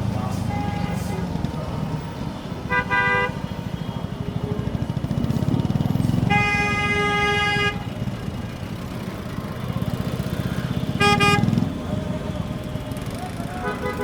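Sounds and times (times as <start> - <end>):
vehicle horn: 2.7 - 3.5, 6.2 - 7.9, 11.0 - 11.6, 13.6 - 14.0
motorcycle engine running: 3.6 - 7.1.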